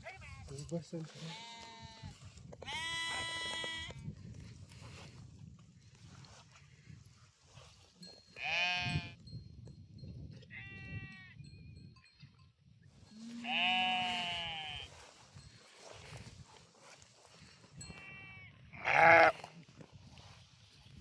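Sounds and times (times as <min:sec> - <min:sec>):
livestock bleating: 0:01.1 - 0:04.0, 0:08.4 - 0:09.2, 0:10.5 - 0:11.4, 0:13.1 - 0:15.0, 0:17.9 - 0:19.5.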